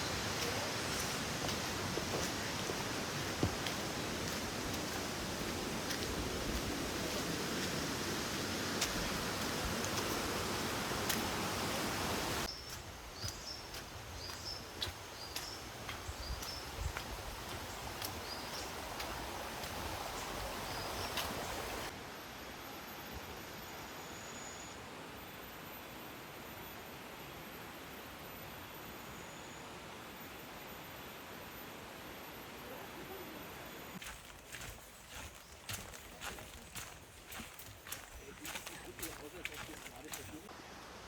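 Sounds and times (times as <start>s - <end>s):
bird chirping: 34.0s - 40.5s.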